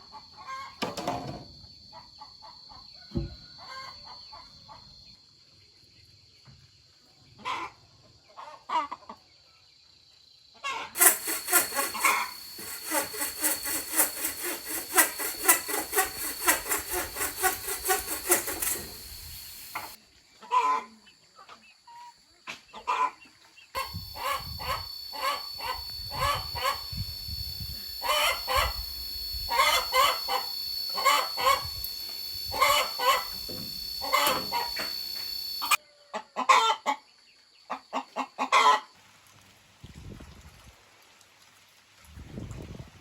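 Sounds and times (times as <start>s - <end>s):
chickens clucking: 23.8s - 27.1s, 27.9s - 28.9s, 29.5s - 36.8s
steady high-pitched tone: 23.8s - 35.8s.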